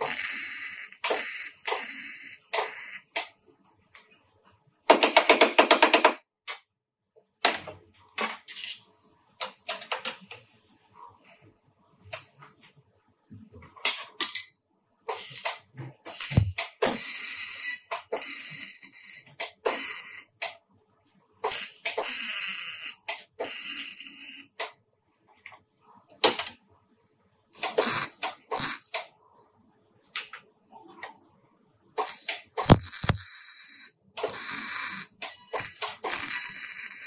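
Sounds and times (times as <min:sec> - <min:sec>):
sharp clicks and knocks: 0:32.3 - 0:33.2.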